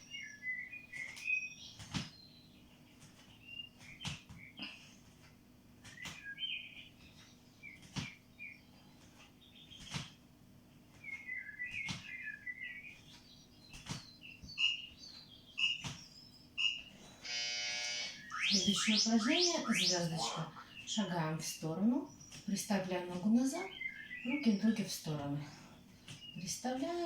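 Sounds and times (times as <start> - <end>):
birds chirping: 5.7 - 27.0.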